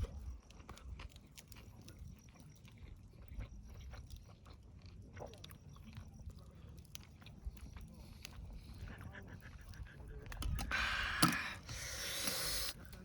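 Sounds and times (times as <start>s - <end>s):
person chewing crunchy food: 0.0s - 9.8s.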